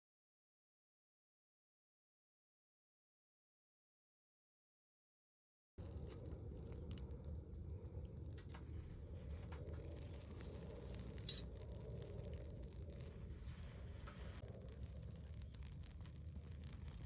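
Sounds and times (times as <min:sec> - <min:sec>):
campfire crackling and popping: 0:05.8 - 0:17.0
low rumble: 0:05.8 - 0:17.0.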